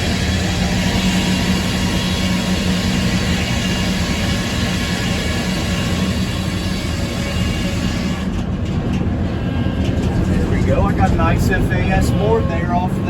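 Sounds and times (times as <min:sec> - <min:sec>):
sawmill saw cutting log: 0:00.0 - 0:08.4
power unit humming: 0:00.0 - 0:13.0.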